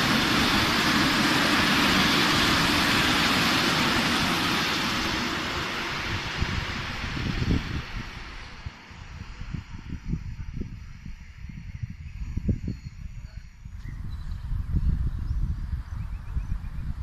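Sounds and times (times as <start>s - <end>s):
freight train wheels rumbling: 0.0s - 17.0s
wind buffeting microphone: 0.0s - 17.0s.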